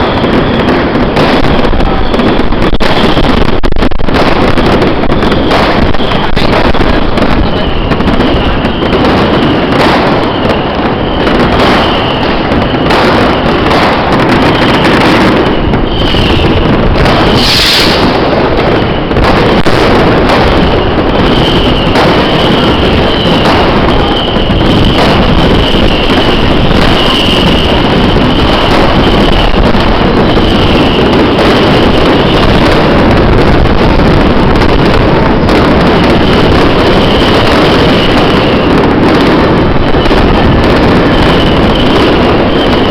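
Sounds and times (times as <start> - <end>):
fireworks bangs and crackling: 0.0 - 42.9
high whistle-like tone: 10.3 - 12.9, 15.5 - 18.3, 20.6 - 31.2, 41.0 - 42.9.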